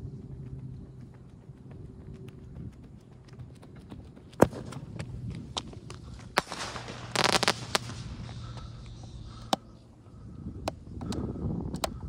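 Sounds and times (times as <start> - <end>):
firework crackling burst: 6.3 - 8.9.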